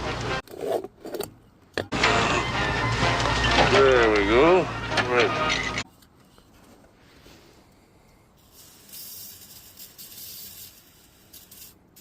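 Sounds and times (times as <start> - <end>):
aerosol can hissing sprays: 8.4 - 12.0.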